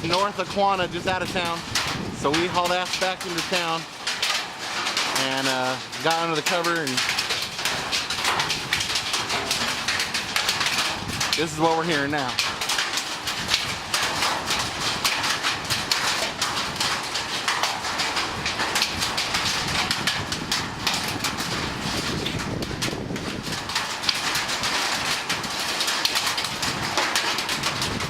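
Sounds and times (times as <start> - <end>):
hail rattling on a roof: 0.0 - 28.0.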